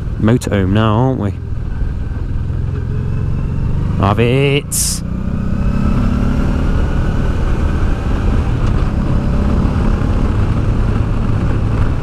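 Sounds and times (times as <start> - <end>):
motorcycle engine running: 0.0 - 12.0
wind rush on microphone: 5.0 - 12.0.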